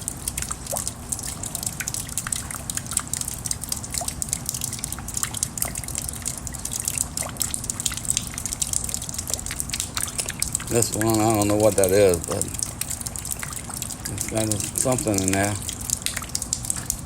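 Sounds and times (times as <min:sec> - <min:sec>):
raindrops ticking: 0:00.0 - 0:17.0
wet rain hiss: 0:00.0 - 0:17.0.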